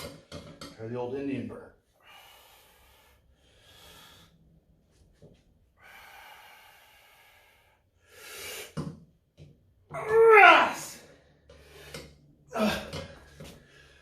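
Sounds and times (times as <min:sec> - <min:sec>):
person breathing heavily: 0:01.9 - 0:04.8, 0:05.7 - 0:08.8, 0:11.0 - 0:14.0.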